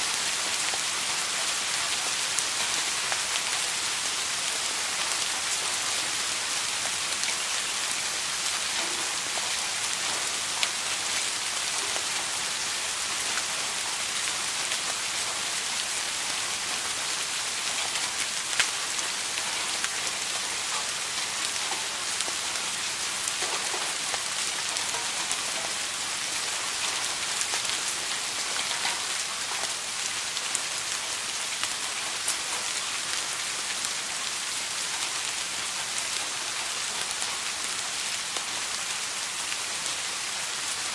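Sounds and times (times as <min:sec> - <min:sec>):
rain falling on a surface: 0:00.0 - 0:40.9
raindrop ticks: 0:08.7 - 0:12.4, 0:17.8 - 0:29.8.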